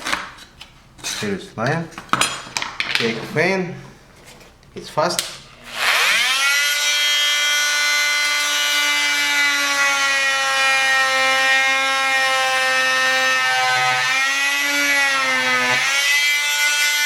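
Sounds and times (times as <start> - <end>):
power tool cutting plastic: 5.6 - 17.0.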